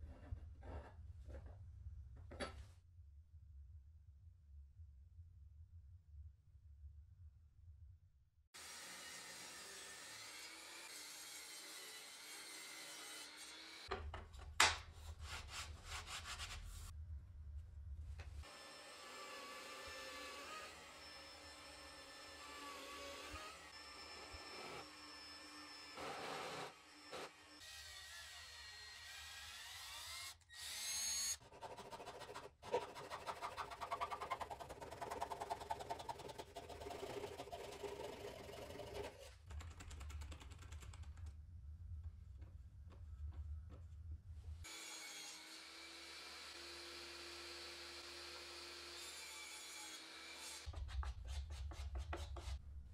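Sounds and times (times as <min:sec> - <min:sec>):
small power tool motor: 0:18.4 - 0:31.4
hand tool rasping wood: 0:31.4 - 0:39.3.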